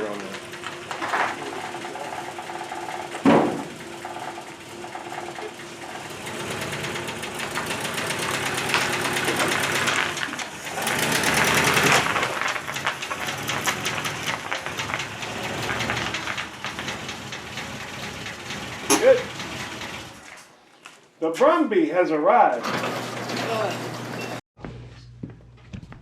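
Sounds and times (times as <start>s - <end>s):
engine knocking rapidly: 0.0s - 20.2s.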